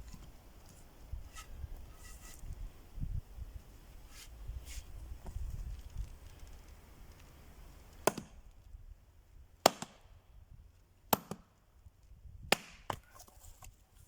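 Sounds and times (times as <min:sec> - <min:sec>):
axe chopping into a log: 0:08.0 - 0:08.4, 0:09.6 - 0:10.0, 0:11.1 - 0:11.5, 0:12.5 - 0:13.0.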